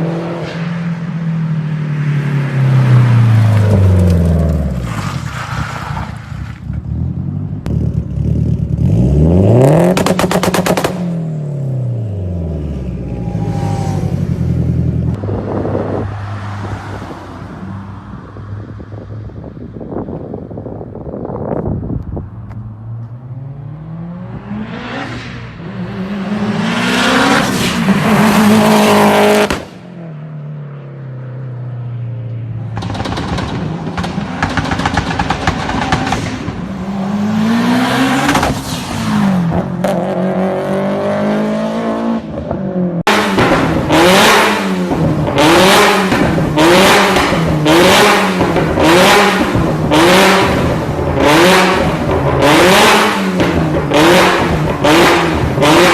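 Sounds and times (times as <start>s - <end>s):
car engines revving: 0.0s - 19.9s, 22.4s - 55.9s
exhaust pops crackling: 32.7s - 36.7s.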